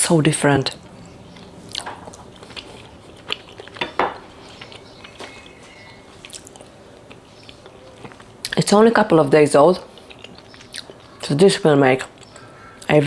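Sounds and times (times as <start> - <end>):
food crunching: 0.6 - 12.9
person chewing food: 0.7 - 8.6, 9.8 - 11.2.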